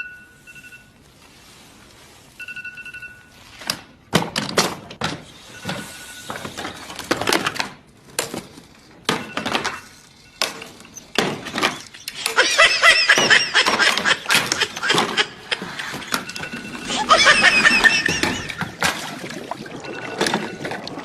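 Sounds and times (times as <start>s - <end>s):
alarm clock beeping: 12.0s - 18.8s.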